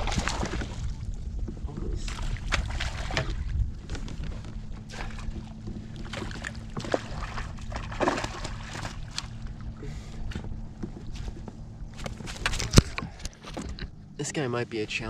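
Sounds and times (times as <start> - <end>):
small knocks and splashes: 0.0 - 9.6
water sloshing around kayak: 0.0 - 14.2.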